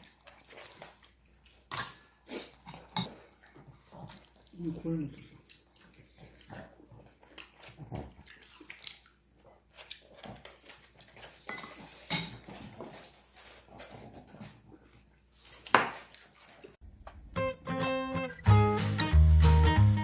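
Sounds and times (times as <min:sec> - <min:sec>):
cutlery clinking against dishes: 0:11.4 - 0:12.6.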